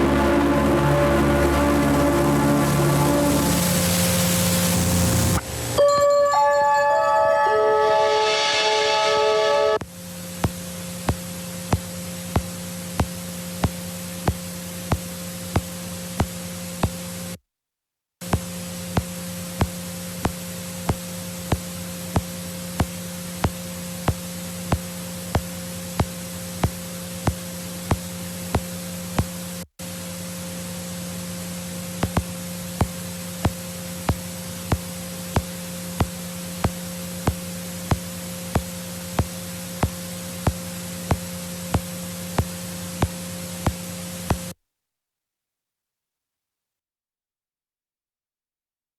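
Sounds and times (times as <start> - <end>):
static hiss: 0.0 - 5.8, 8.0 - 17.4, 18.2 - 44.6
steady hum: 0.0 - 5.8, 18.4 - 44.6.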